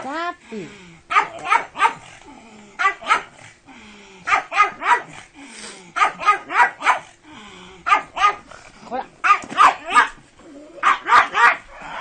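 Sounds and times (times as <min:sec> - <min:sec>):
dog barking: 0:01.1 - 0:02.1, 0:02.8 - 0:03.4, 0:04.3 - 0:05.2, 0:06.0 - 0:07.1, 0:07.9 - 0:08.5, 0:09.2 - 0:10.2, 0:10.8 - 0:11.7.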